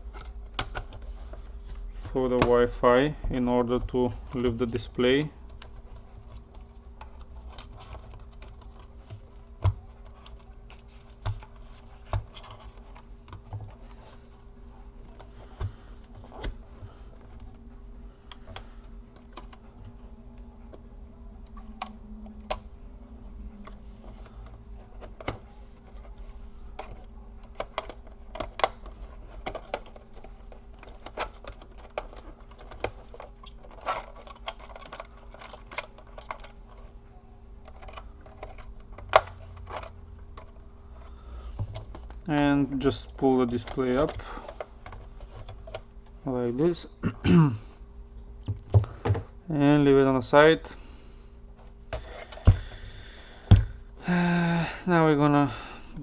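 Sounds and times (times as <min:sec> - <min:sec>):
plastic and metal parts clicking: 0:00.0 - 0:01.3, 0:03.6 - 0:14.2, 0:18.3 - 0:20.1, 0:23.6 - 0:36.9, 0:37.6 - 0:45.9
faint steady hum: 0:00.0 - 0:56.0.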